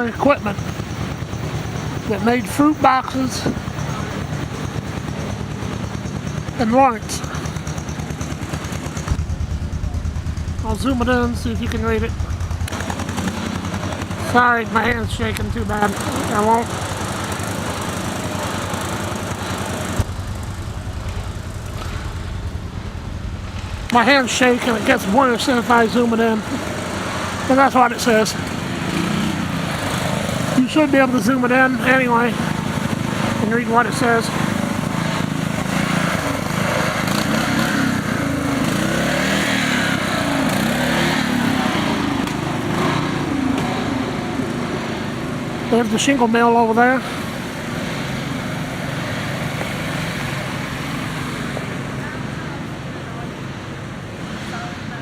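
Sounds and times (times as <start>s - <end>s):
engine chugging: 0.0s - 55.0s.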